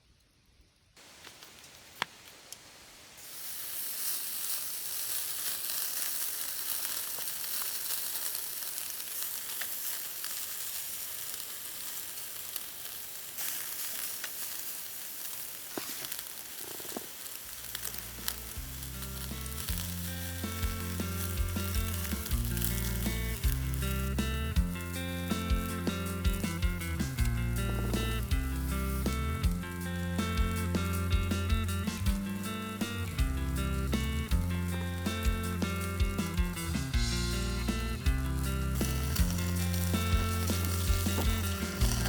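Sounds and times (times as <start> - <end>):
food sizzling in a hot pan: 2.8 - 42.0
background music with bass: 17.6 - 42.0.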